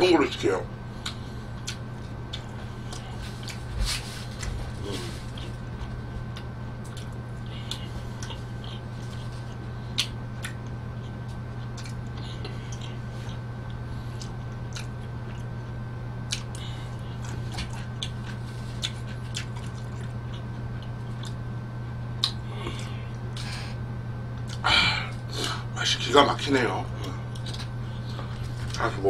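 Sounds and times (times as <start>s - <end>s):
steady low hum: 0.0s - 29.0s
man chewing food: 0.9s - 21.5s, 22.1s - 25.7s, 26.9s - 28.9s
wet mouth clicks and smacks: 22.2s - 22.4s.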